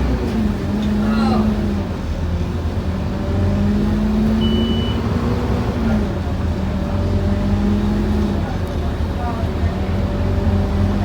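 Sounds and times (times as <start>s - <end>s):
bus diesel engine running: 0.0s - 11.0s
short high beep: 4.4s - 5.0s.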